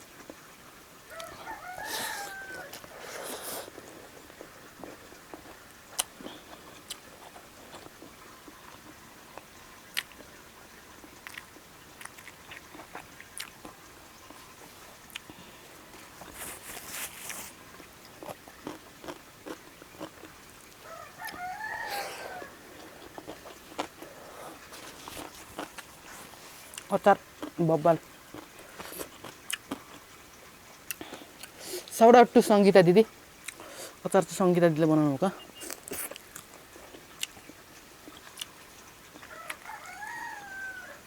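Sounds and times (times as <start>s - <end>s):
rooster crowing: 1.1s - 3.0s, 20.8s - 22.9s, 39.2s - 41.0s
chewing with clicks and smacks: 1.1s - 31.9s, 33.4s - 34.0s, 35.4s - 40.5s.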